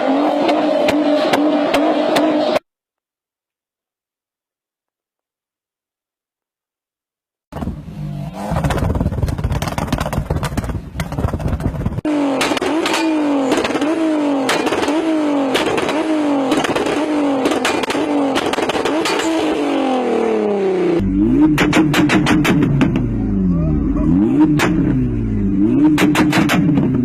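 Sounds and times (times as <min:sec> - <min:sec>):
car engine revving: 0:00.0 - 0:02.6, 0:07.6 - 0:27.0
exhaust pops: 0:07.5 - 0:19.4, 0:21.4 - 0:23.2, 0:25.8 - 0:27.0.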